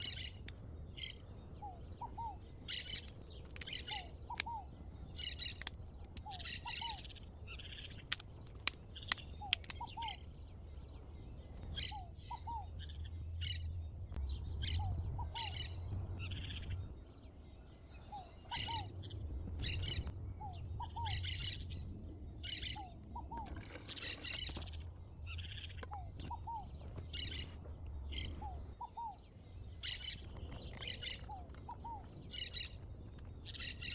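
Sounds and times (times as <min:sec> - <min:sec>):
sharp clicks: 0:08.0 - 0:10.0.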